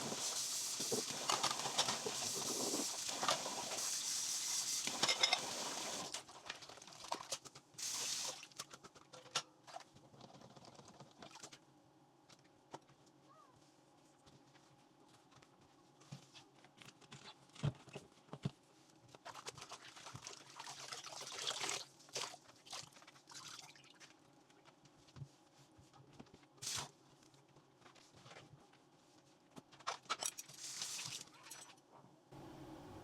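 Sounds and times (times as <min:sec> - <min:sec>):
water running from tap: 0:00.0 - 0:06.2, 0:07.8 - 0:08.4, 0:30.6 - 0:31.2
dishes clinking: 0:04.9 - 0:05.8.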